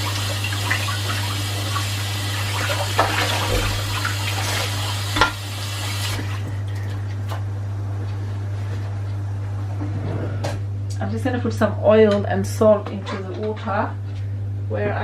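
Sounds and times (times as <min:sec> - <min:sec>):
kitchen tap running: 0:00.0 - 0:07.0
vegetables rinsed under water: 0:00.0 - 0:07.2.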